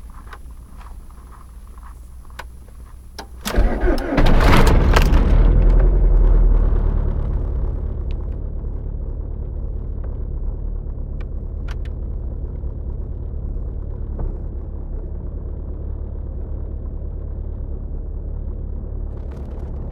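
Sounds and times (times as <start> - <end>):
faint clicks: 0.0 - 3.6, 11.1 - 12.0
diesel engine idling: 0.0 - 19.9.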